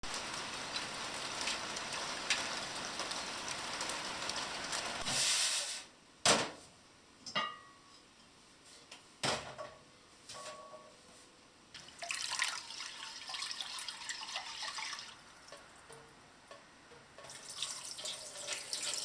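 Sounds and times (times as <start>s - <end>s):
rain falling: 0.0s - 5.1s.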